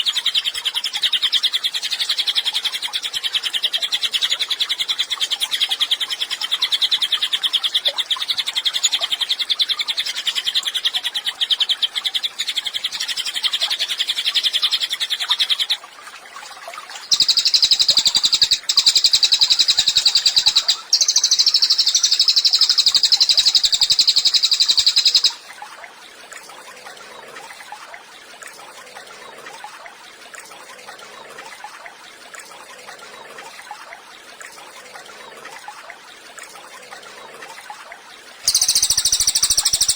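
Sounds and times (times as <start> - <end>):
songbird rattling trills: 17.1 - 25.4, 38.5 - 39.9.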